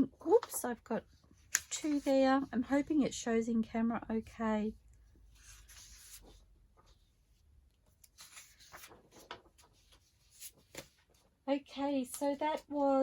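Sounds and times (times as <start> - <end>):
paper sheets rustling: 1.4 - 2.2, 8.0 - 11.3.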